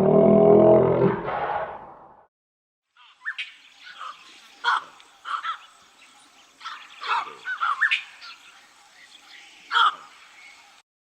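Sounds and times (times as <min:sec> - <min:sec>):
birds chirping and squawking: 0:03.0 - 0:10.7.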